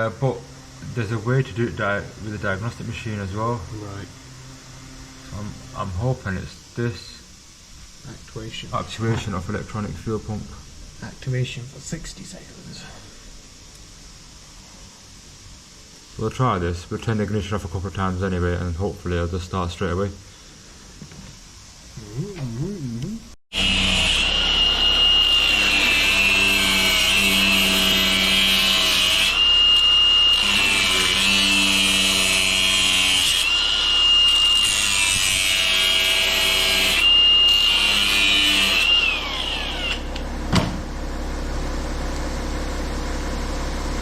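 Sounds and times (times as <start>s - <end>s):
high steady whine: 0.0s - 18.3s.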